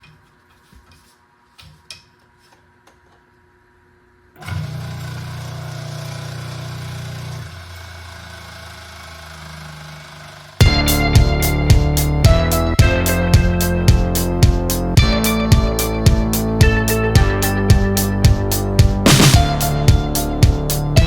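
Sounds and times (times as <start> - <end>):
air compressor motor humming: 4.4 - 11.4.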